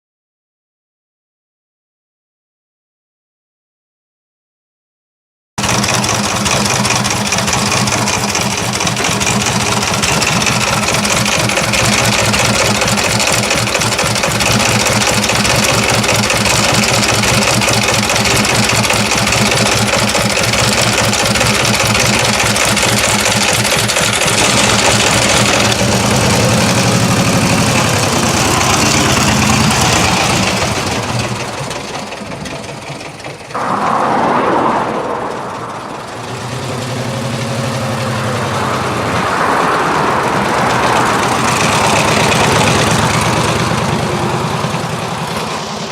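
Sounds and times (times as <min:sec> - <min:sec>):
motorcycle engine running: 0:05.6 - 0:33.6, 0:40.3 - 0:45.9.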